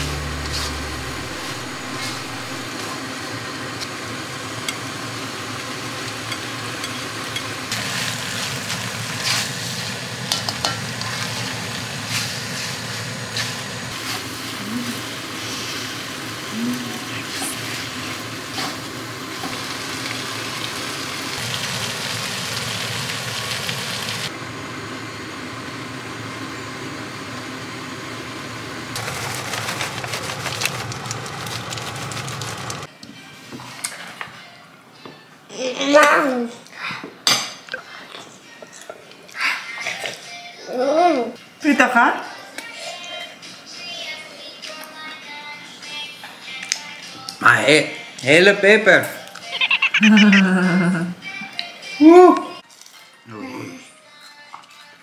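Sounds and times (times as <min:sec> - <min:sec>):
food sizzling in a wok: 0:00.0 - 0:27.6.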